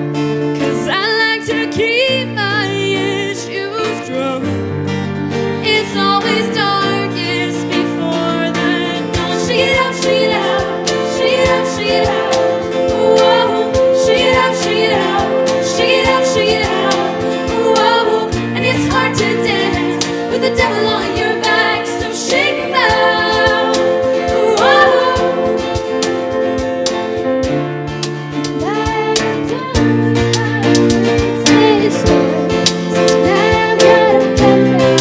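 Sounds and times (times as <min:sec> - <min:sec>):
choir singing with band: 0:07.3 - 0:27.6, 0:28.5 - 0:35.0.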